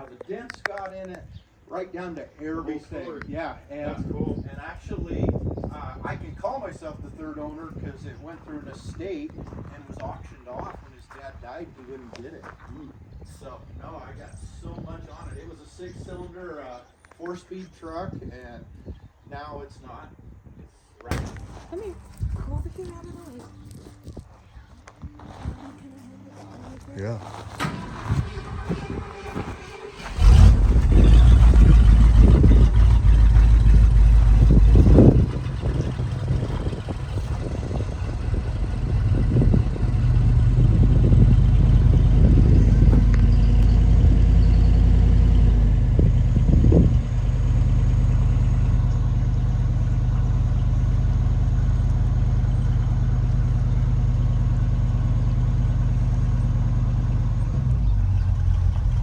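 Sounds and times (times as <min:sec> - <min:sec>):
truck engine starting and revving: 0:26.6 - 0:59.0.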